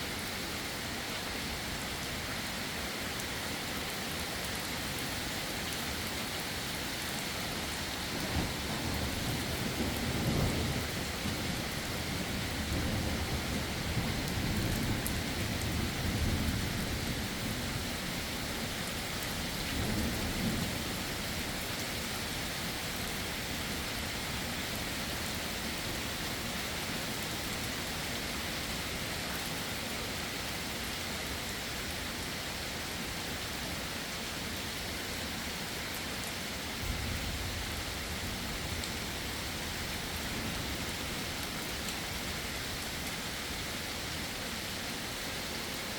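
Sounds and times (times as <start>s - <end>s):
heavy rain: 0.0s - 45.9s
thunder rumbling: 8.1s - 17.8s, 36.8s - 42.2s.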